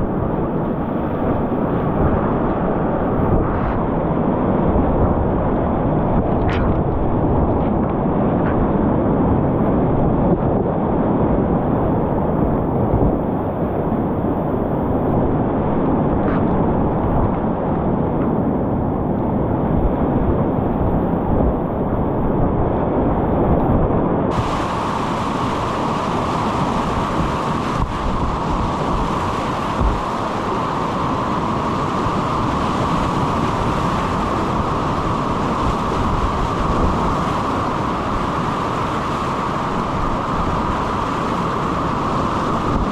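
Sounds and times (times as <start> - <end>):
wind buffeting microphone: 0.0 - 42.9
whitewater rapids rushing: 24.3 - 42.9.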